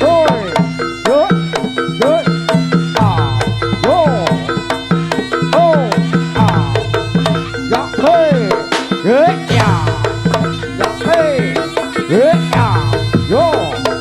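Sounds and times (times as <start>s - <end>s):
fast percussion strikes: 0.0s - 14.0s
low held tones: 0.0s - 14.0s
pitch-bending drum stroke: 3.0s - 14.0s.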